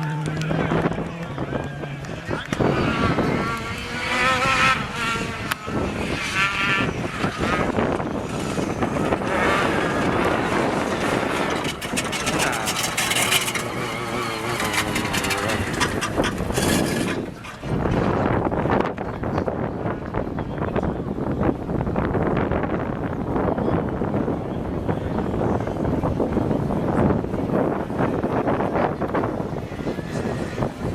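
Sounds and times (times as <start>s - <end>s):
rally car engine revving: 0.0s - 19.1s, 25.2s - 30.9s
engine crackles: 0.0s - 19.5s.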